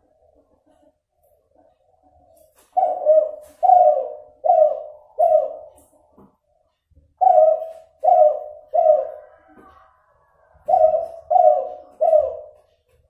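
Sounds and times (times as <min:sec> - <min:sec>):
dove cooing: 0:02.7 - 0:05.8, 0:07.2 - 0:12.9.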